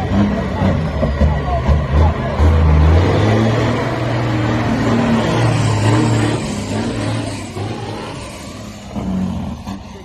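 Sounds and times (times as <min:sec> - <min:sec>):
truck engine accelerating: 0:00.0 - 0:10.0.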